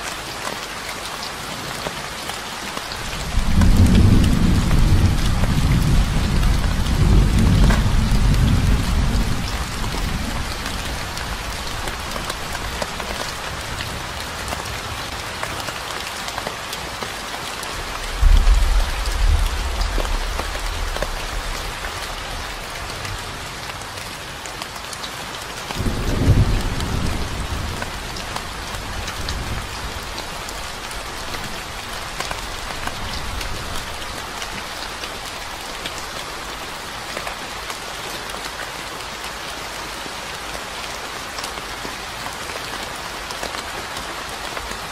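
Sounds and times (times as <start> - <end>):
steady rain falling: 0.0 - 44.9
low rumbles of thunder: 3.1 - 12.5, 17.8 - 22.7.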